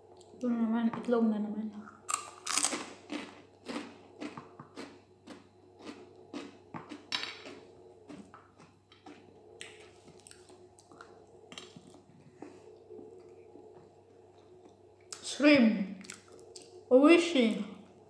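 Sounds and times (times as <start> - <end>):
person chewing soft food: 1.9 - 15.2, 16.0 - 16.8.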